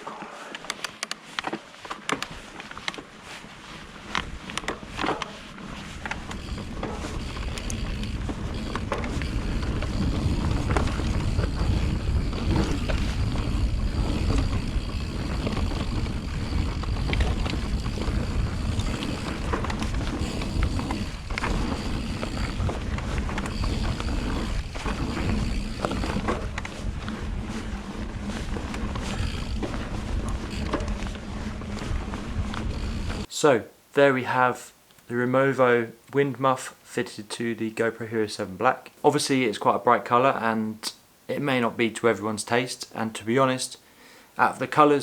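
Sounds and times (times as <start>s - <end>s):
bike clicks and rattles: 0.1s - 33.3s
rumble of wind and tyres: 0.7s - 33.3s.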